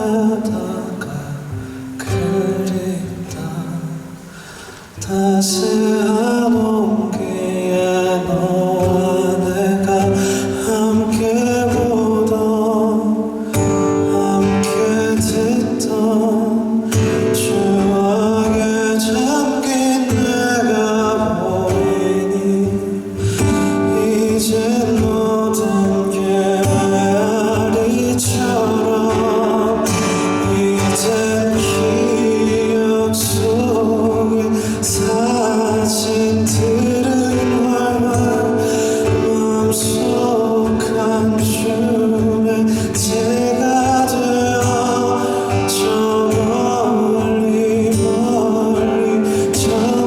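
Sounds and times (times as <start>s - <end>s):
person singing: 0.0s - 50.0s
drum beat: 21.2s - 50.0s.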